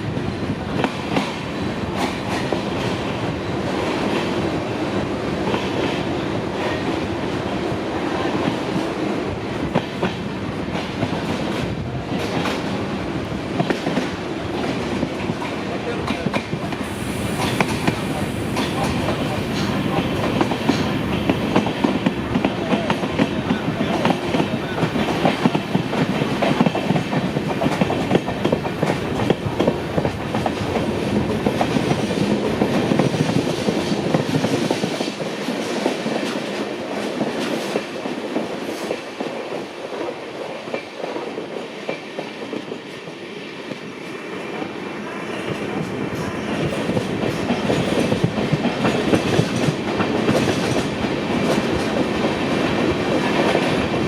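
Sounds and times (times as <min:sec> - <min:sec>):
train clickety-clack over rail joints: 0:00.0 - 0:54.0.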